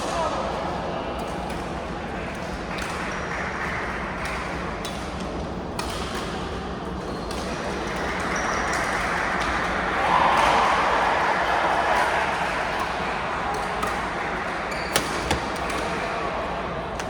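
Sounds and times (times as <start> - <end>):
spectator chatter: 8.2 - 17.0.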